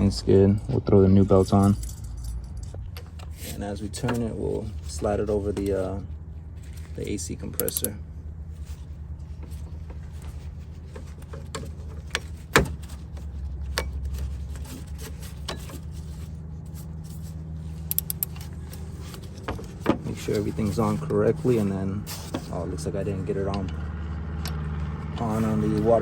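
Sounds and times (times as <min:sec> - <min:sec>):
low rumble: 0:00.0 - 0:07.1
tools clicking and knocking: 0:07.6 - 0:07.9, 0:17.8 - 0:20.1.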